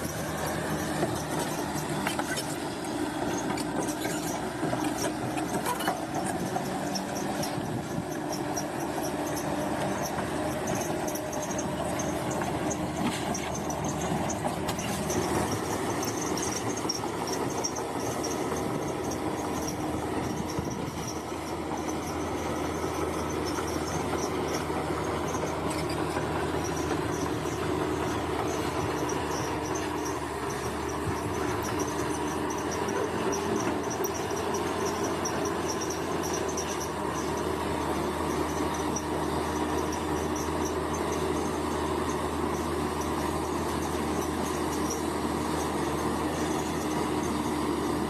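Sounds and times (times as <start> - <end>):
bulldozer diesel engine: 0.0 - 48.0
insects chirping: 8.1 - 45.0.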